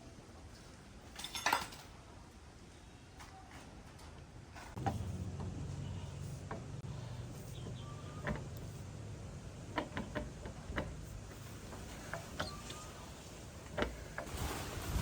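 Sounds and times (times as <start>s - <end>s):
hand tools clicking and tapping: 9.6s - 14.4s.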